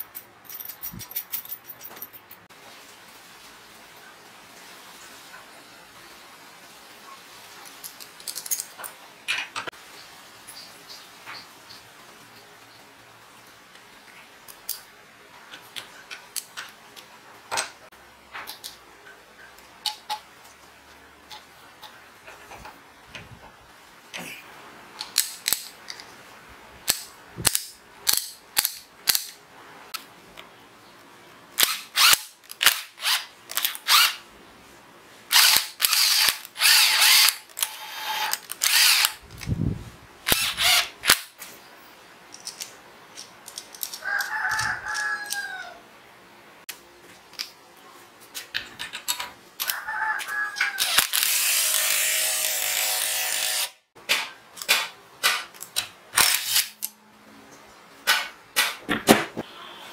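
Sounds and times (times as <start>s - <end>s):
cordless impact driver spinning: 35.3s - 39.2s, 40.3s - 41.2s.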